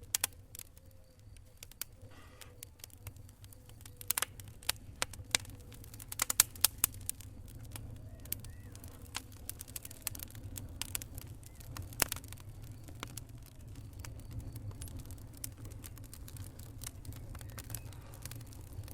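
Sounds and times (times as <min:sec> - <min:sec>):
wood fire crackling: 0:00.0 - 0:18.9.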